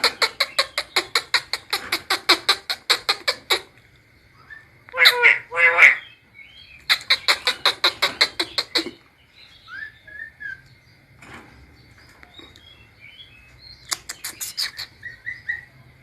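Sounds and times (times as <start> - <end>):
bird harsh chattering: 0.0 - 3.7, 4.9 - 6.2, 6.8 - 9.1, 13.8 - 15.7.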